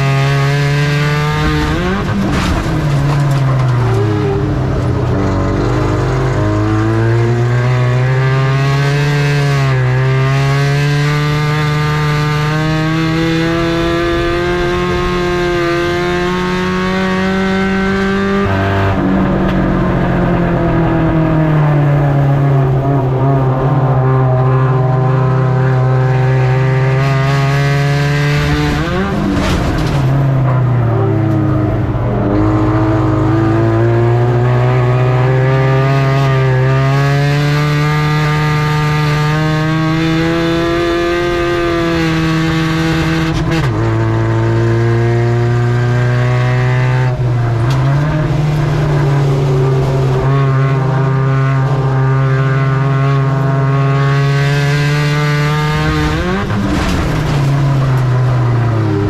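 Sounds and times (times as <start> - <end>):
race truck engine revving: 0.0 - 59.0.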